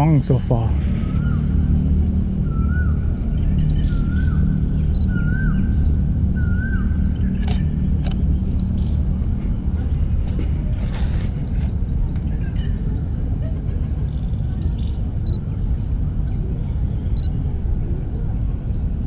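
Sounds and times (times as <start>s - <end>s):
bird chirping: 0.0s - 13.2s
low rumble: 0.0s - 19.0s
sharp clicks: 7.4s - 8.2s.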